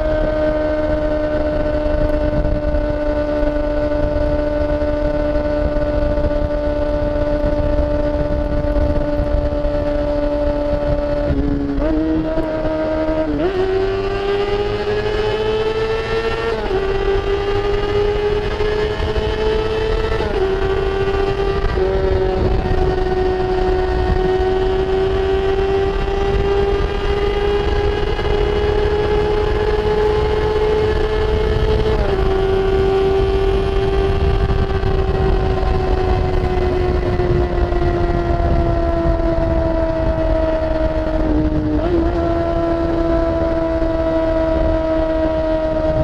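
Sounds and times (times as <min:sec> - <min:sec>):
motorcycle engine upshifting: 0:00.0 - 0:46.0.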